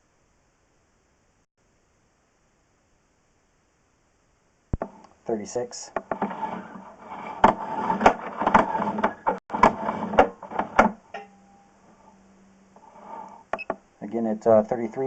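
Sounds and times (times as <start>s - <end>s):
faint steady hum: 0.0s - 7.2s, 10.8s - 15.0s.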